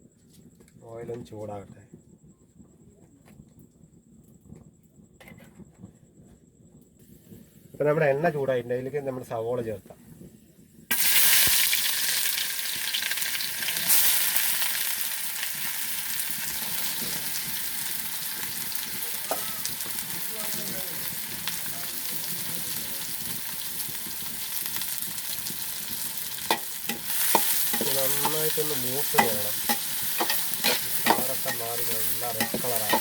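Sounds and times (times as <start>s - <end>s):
onions sizzling in hot oil: 10.6s - 33.0s.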